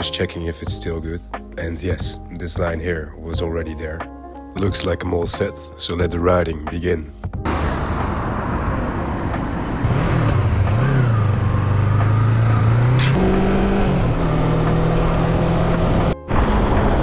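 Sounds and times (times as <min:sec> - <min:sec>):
wind and road noise: 0:07.3 - 0:17.0
motorcycle engine accelerating: 0:07.5 - 0:17.0.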